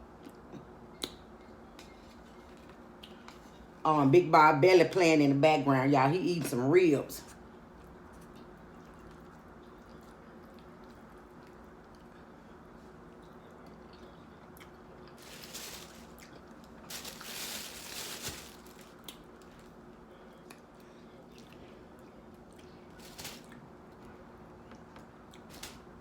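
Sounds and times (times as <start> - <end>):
faint steady hum: 0.0 - 26.0
person chewing and swallowing: 7.8 - 15.2, 20.4 - 22.8.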